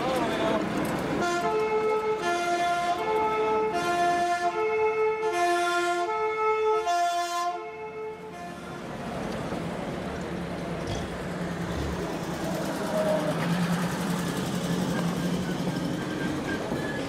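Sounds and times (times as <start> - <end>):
people's voices: 0.0 - 1.0
old car engines running: 10.1 - 16.8.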